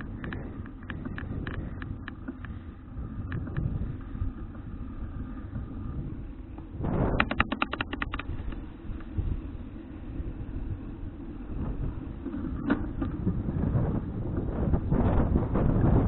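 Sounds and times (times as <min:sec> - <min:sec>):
bicycle freewheel clicking: 0:00.0 - 0:16.0
rumble of riding: 0:00.0 - 0:16.0
wind on microphone: 0:00.0 - 0:16.0.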